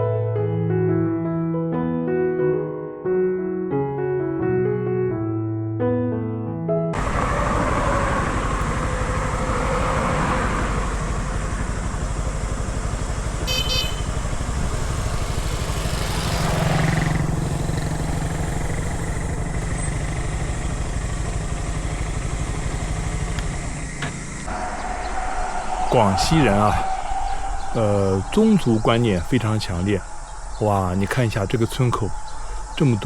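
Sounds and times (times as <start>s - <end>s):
motorcycle engine running: 7.0s - 25.4s.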